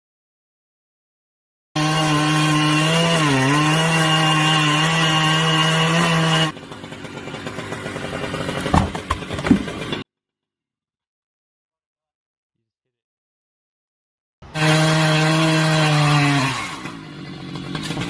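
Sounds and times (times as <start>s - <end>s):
chainsaw running at full throttle: 1.8s - 10.0s, 14.4s - 18.0s
sharp knocks: 8.6s - 10.0s.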